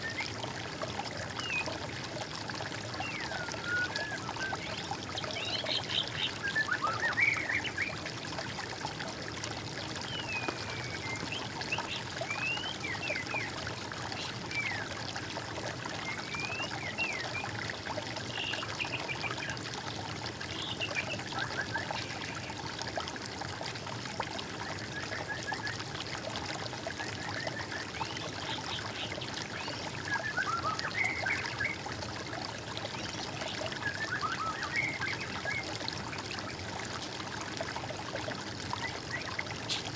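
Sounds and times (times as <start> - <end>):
water trickling: 0.0 - 39.9
birds singing: 3.0 - 8.0, 10.0 - 14.9, 27.2 - 31.8, 32.8 - 36.6.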